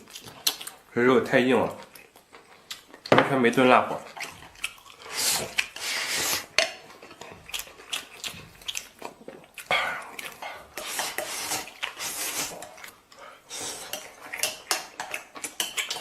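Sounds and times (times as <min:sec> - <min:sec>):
chewing: 0:00.0 - 0:00.9, 0:01.6 - 0:16.0.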